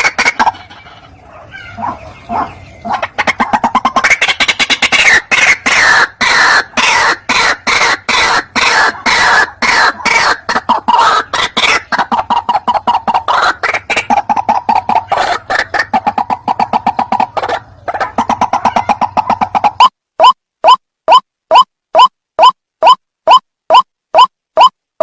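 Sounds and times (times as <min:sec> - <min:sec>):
bird harsh croaking calls: 0:00.0 - 0:21.2.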